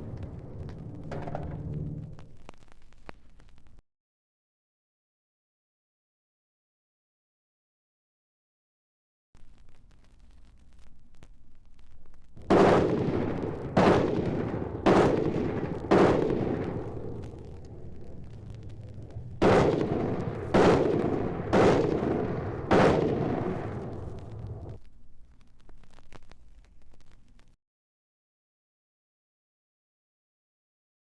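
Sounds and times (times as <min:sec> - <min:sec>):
loud gunshots with echo: 0:12.4 - 0:24.8.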